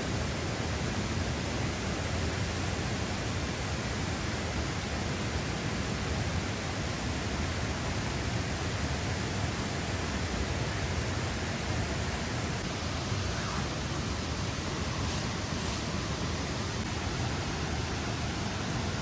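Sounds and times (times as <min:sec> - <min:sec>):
heavily falling water hissing: 0:08.7 - 0:19.0.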